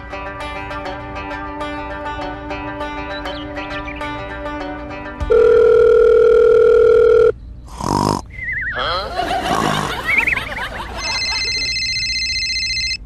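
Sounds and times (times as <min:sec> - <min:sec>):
telephone dial tone: 0:05.3 - 0:07.3, 0:11.0 - 0:13.0
high telephone ringing tone: 0:05.3 - 0:07.4, 0:10.9 - 0:13.0.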